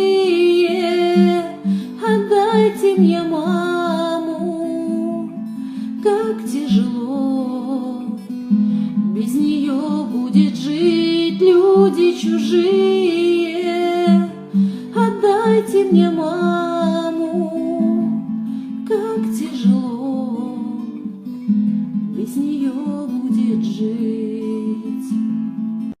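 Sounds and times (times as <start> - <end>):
woman singing: 0.0 - 21.3, 21.9 - 25.4
acoustic guitar: 0.0 - 26.0.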